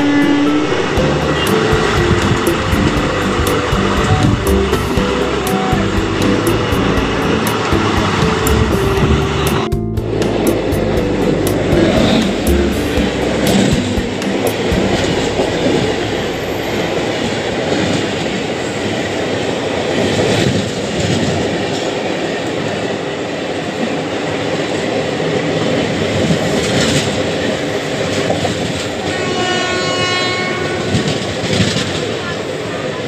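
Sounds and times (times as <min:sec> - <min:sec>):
train horn: 0:00.0 - 0:02.5, 0:29.0 - 0:32.4
wheels clacking over rail joints: 0:00.0 - 0:30.2
train rumbling past: 0:00.0 - 0:33.0.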